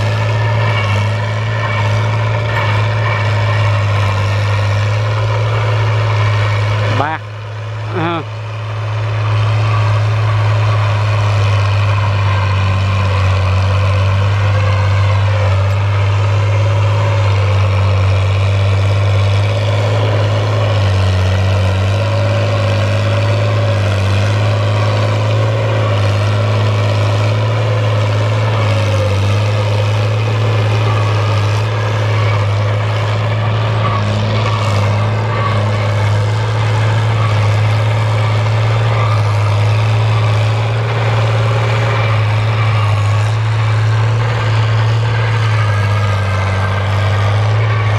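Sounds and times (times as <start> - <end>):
tractor diesel engine under load: 0.0 - 47.9.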